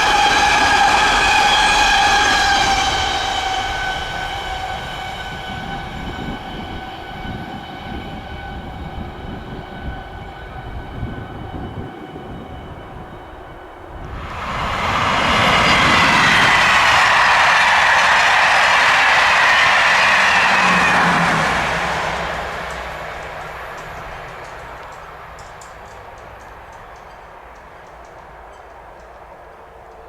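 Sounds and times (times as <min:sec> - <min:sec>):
train high whine: 0:00.0 - 0:30.0
train wheels rumbling: 0:00.0 - 0:30.0.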